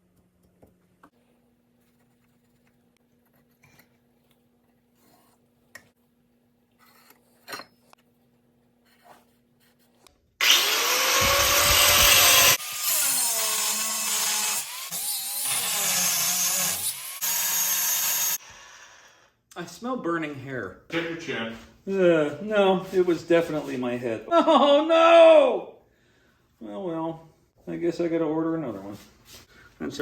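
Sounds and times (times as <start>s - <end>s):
handheld power tool running: 10.4s - 18.4s.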